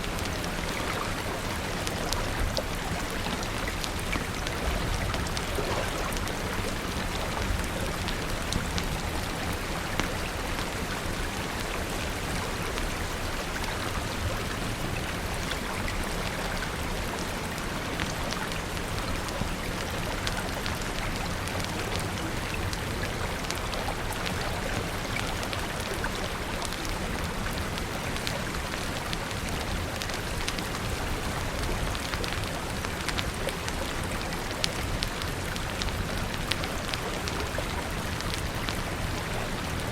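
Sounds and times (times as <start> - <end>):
rain falling: 0.0 - 39.9
small sharp ticks and crackles: 0.0 - 39.9.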